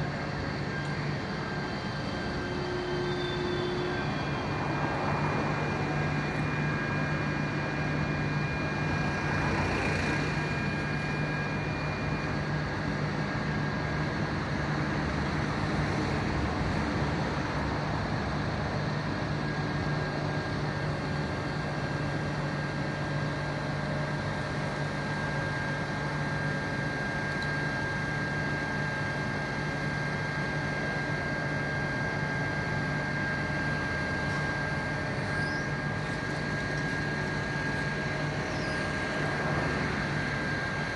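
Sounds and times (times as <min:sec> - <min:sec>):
vehicle engine hum: 0:00.0 - 0:40.9
traffic noise: 0:02.4 - 0:11.3, 0:33.4 - 0:40.9.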